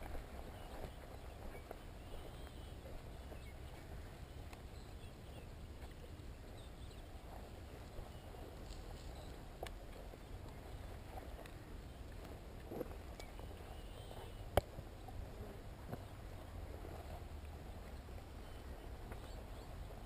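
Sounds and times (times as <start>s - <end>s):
footsteps and rustling: 0.0s - 20.0s
light ticks: 4.4s - 4.7s, 8.6s - 9.8s, 11.4s - 13.5s, 14.5s - 14.8s.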